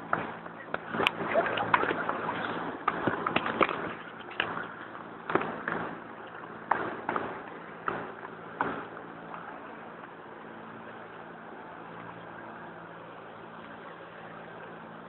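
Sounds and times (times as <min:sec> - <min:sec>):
sharp knocks and thumps: 0:00.1 - 0:09.0.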